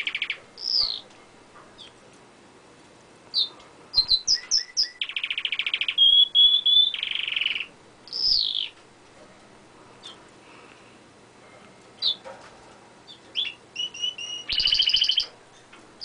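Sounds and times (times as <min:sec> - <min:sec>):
canary singing: 0:00.0 - 0:01.1, 0:03.3 - 0:08.8, 0:10.0 - 0:10.2, 0:12.0 - 0:12.3, 0:13.1 - 0:15.8.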